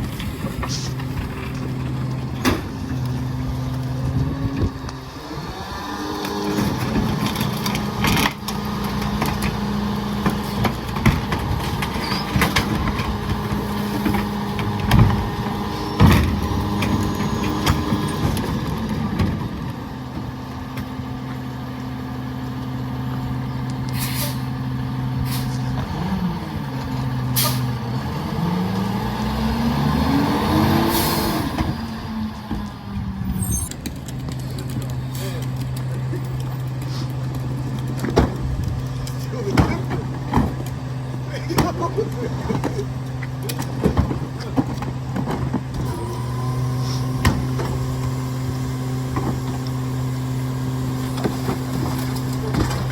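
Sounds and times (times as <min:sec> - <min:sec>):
sharp bangs and clunks: 0:00.0 - 0:03.0, 0:10.2 - 0:19.6, 0:37.8 - 0:45.9
garbage truck engine running: 0:00.0 - 0:52.9
short air hisses: 0:24.0 - 0:24.5.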